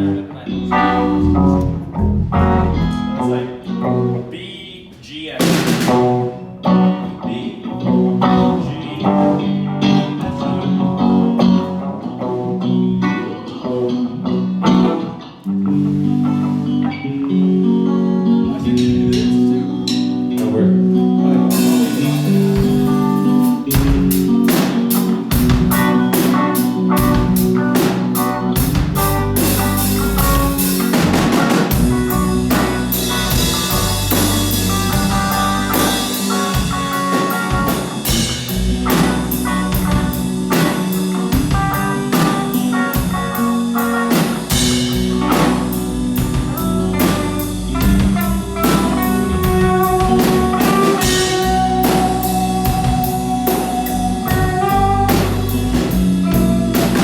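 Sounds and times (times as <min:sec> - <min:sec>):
guitar and bass chords: 0:00.0 - 0:57.0
drum kit beat: 0:00.7 - 0:03.2, 0:05.4 - 0:06.8, 0:18.7 - 0:20.5, 0:21.4 - 0:57.0.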